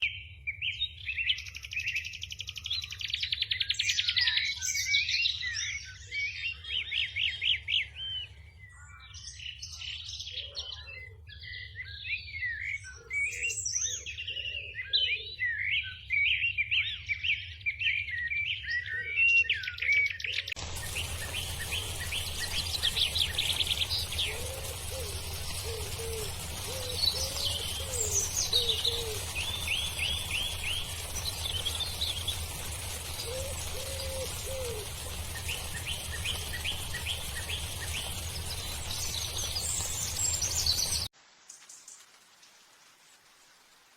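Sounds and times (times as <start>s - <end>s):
songbirds singing: 0.0s - 42.0s
steady background hiss: 20.6s - 43.9s.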